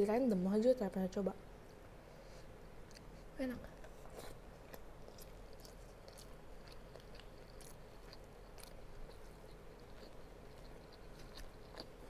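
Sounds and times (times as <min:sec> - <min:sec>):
person chewing food: 0:02.3 - 0:12.0.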